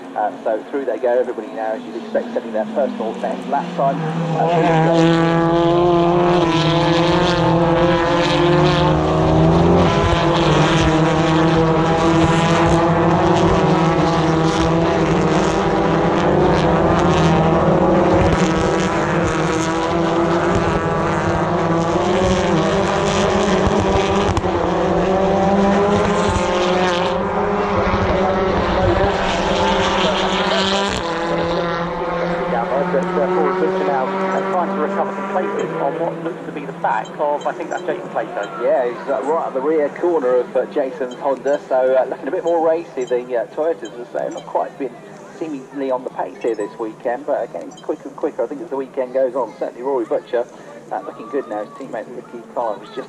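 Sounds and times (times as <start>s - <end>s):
race cars passing at high revs: 0.0s - 53.0s.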